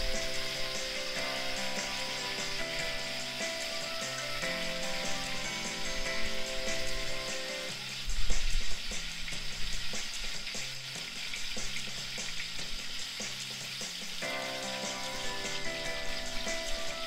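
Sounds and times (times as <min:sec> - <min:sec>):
prawns sizzling in hot oil: 0:00.0 - 0:17.0.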